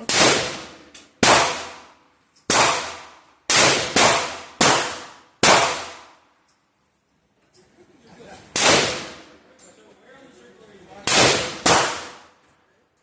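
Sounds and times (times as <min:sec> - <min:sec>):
rifle shots with echo: 0:00.0 - 0:06.2, 0:08.6 - 0:09.4, 0:11.0 - 0:12.4.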